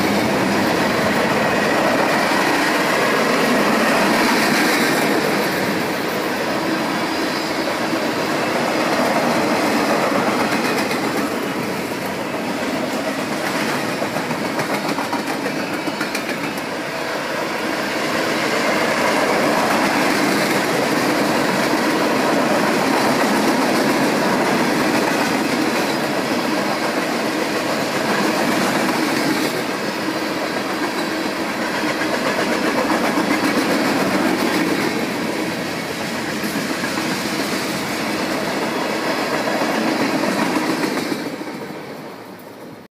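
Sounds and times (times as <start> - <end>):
freight train rumbling past: 0.0 - 42.9
wheels clicking over rail joints: 13.2 - 16.8.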